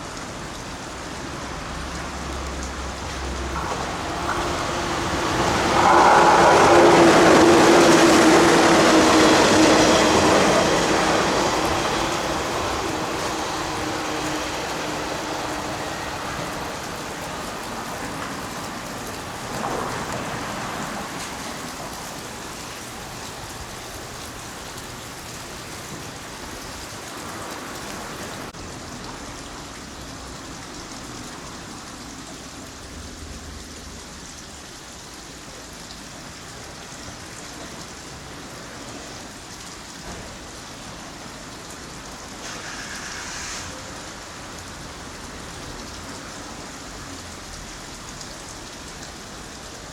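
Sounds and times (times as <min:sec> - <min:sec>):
passing train: 0:00.0 - 0:49.9
rain falling: 0:00.0 - 0:49.9.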